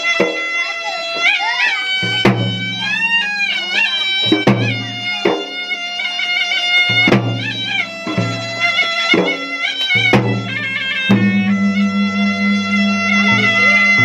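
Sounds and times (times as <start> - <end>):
reedy wind instrument melody: 0.0 - 14.0
drums beating: 0.2 - 14.0
low sustained tone: 11.1 - 14.0.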